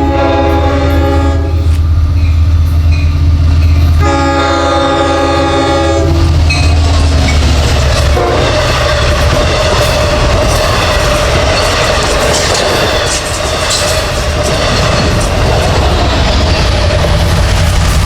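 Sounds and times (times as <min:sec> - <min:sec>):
train wheels rumbling on rails: 0:00.0 - 0:18.0
wheels clacking over rail joints: 0:06.2 - 0:18.0.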